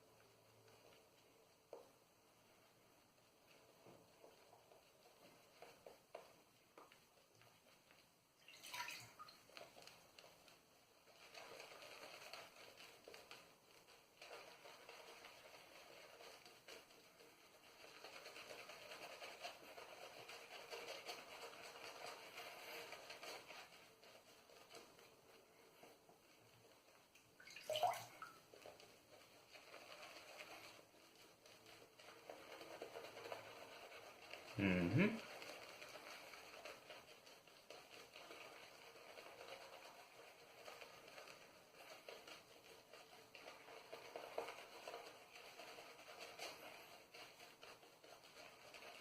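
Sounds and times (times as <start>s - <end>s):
shaving brush swishing in soap: 0.0s - 49.0s
wet squelch: 8.4s - 9.5s, 27.4s - 28.4s.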